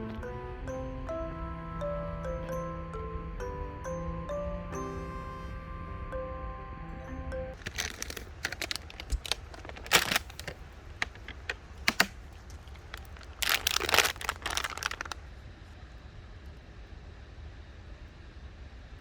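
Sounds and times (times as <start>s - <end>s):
objects being handled: 7.6s - 15.2s.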